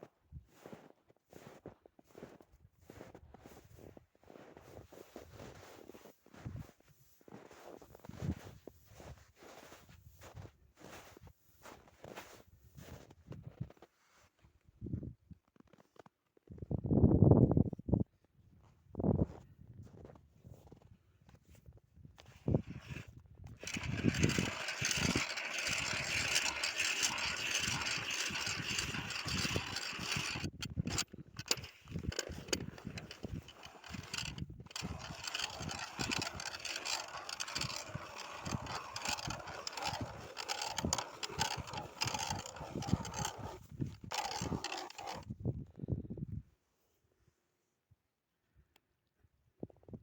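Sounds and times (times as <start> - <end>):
ice auger grinding through ice: 22.2 - 45.3.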